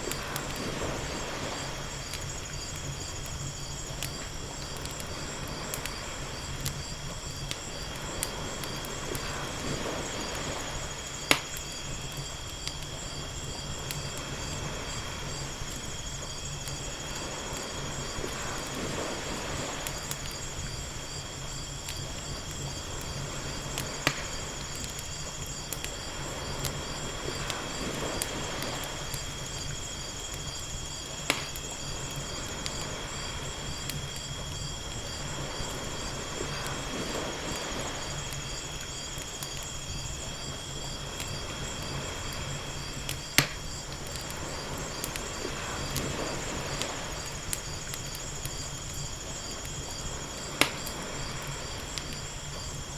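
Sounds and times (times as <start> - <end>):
fire crackling and popping: 0.0 - 52.9
ocean waves lapping: 0.2 - 2.0, 8.0 - 10.9, 17.0 - 19.9, 44.3 - 47.5.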